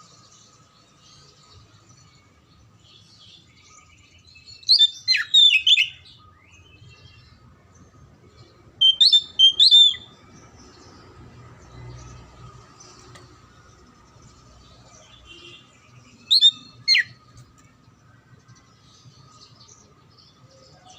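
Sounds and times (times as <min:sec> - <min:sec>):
faint bird chirping: 0:00.0 - 0:20.9
bird singing whistled phrases: 0:04.4 - 0:07.0, 0:08.8 - 0:10.1, 0:16.2 - 0:17.2.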